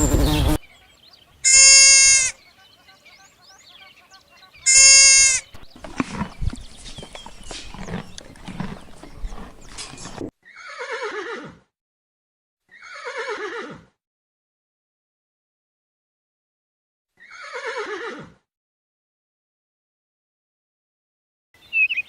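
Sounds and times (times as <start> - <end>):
horse whinnies: 1.4 - 2.3, 4.6 - 6.4, 7.4 - 11.6, 12.8 - 13.9, 17.2 - 18.4
short high bleat: 1.4 - 2.4, 4.7 - 5.4.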